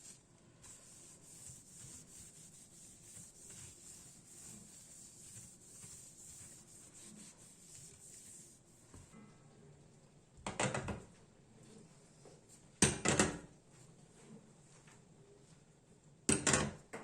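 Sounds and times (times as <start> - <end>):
faint rubbing and scraping: 0.0 - 9.3.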